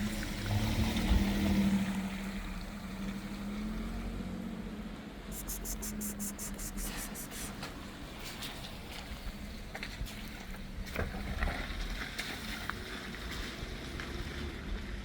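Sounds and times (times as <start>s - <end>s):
faint high ticks: 5.4s - 7.5s.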